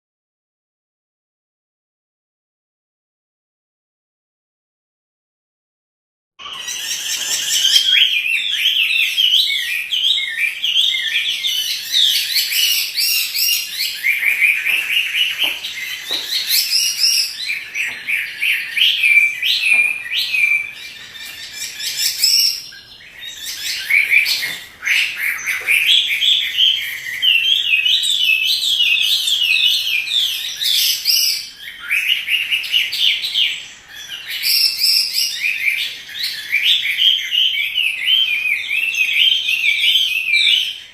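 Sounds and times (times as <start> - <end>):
bird singing whistled phrases: 6.4 - 40.9.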